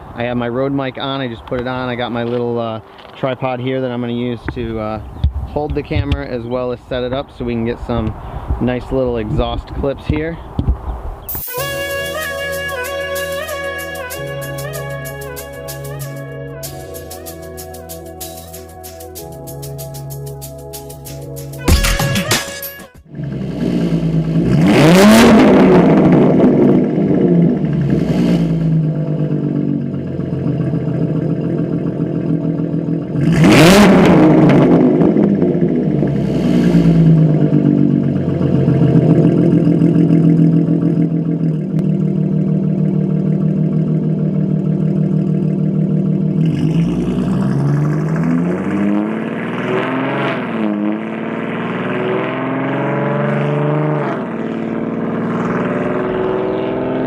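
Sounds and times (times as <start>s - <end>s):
car exhaust revving: 23.0s - 57.0s
car engine idling: 23.1s - 49.6s.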